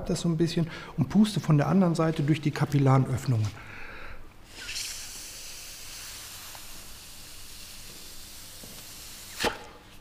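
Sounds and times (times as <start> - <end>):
air blown through wood hissing: 4.4 - 9.6.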